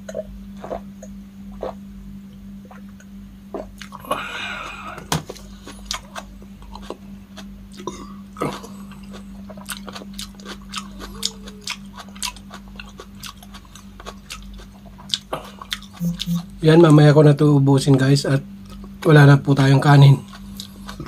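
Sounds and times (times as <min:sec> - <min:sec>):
steady low hum: 0:00.0 - 0:21.0
wet chewing and mouth clicks: 0:02.7 - 0:04.0, 0:04.6 - 0:16.6, 0:20.2 - 0:21.0.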